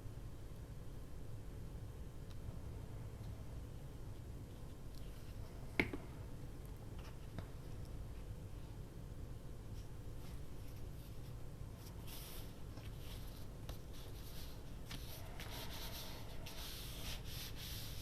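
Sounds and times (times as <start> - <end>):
paper scratching and rubbing: 10.2 - 18.0.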